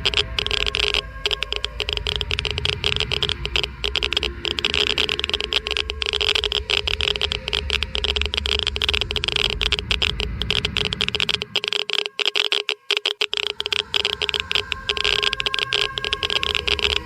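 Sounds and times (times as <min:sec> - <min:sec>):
steady low hum: 0:00.0 - 0:11.8
geiger counter clicking rapidly: 0:00.0 - 0:17.0.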